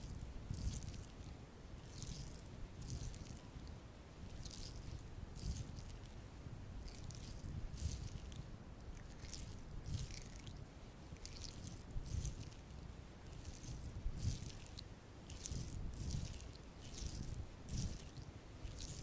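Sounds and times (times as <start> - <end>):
makeup brush strokes: 11.2 - 19.0.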